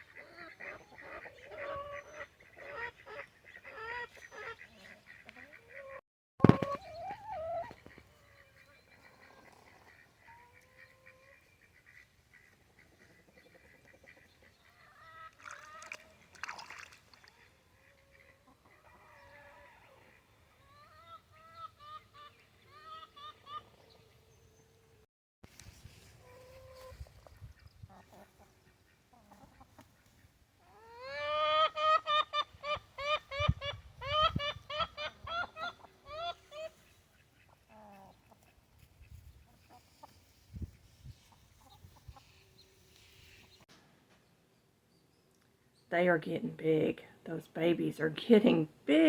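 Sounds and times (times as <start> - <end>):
poultry calling: 0.0 - 6.0, 6.6 - 15.9, 26.2 - 40.3.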